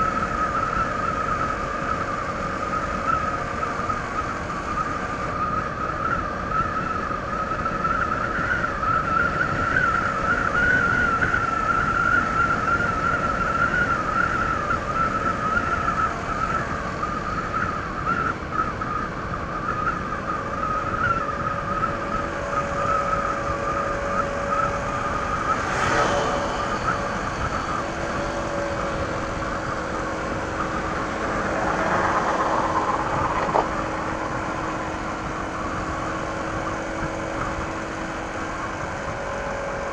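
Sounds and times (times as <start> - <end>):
wind and road noise: 0.0 - 39.9
scooter engine running: 22.2 - 39.9
steady high tone: 22.3 - 39.6.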